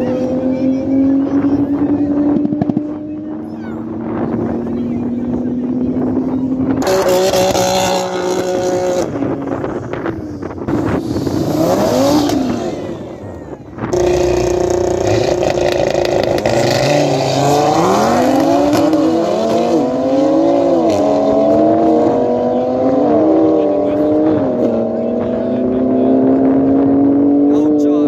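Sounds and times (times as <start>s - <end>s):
car engine revving and accelerating: 0.0s - 28.0s
race car engine passing away: 0.0s - 28.0s.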